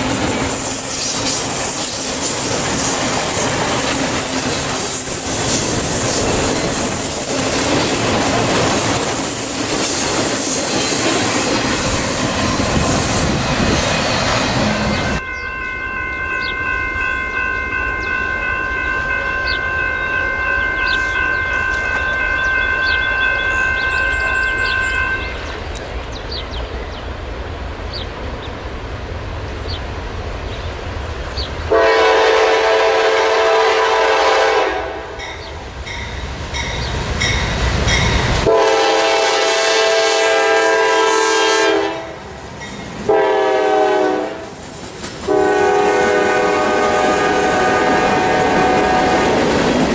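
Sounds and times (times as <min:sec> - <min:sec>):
train air horn blasts: 0:31.7 - 0:35.3, 0:38.4 - 0:42.2, 0:43.1 - 0:44.6, 0:45.3 - 0:49.5.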